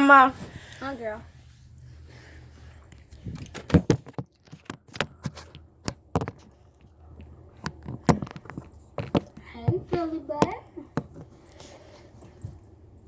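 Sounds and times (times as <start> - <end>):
light clicks and knocks: 2.9 - 12.8.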